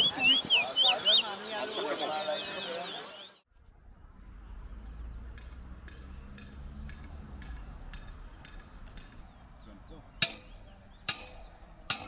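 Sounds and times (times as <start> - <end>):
faint bird chirps: 0.0 - 4.2.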